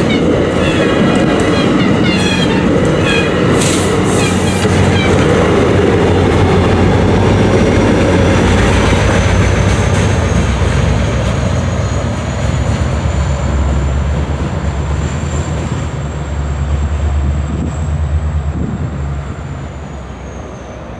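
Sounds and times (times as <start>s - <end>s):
train wheels rumbling on rails: 0.0s - 20.9s.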